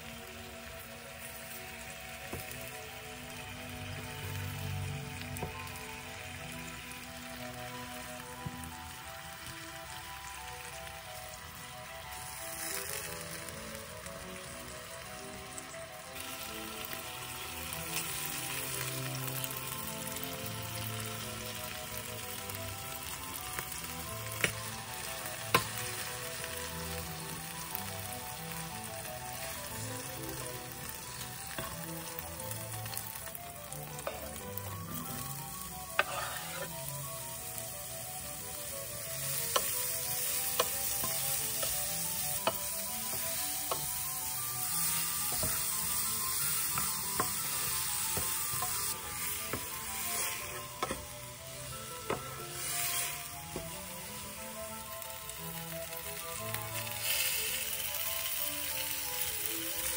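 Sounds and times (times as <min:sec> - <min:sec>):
chicken sizzling in oil: 0:00.0 - 0:59.9
wooden spatula stirring: 0:36.0 - 0:36.7, 0:48.1 - 0:51.1.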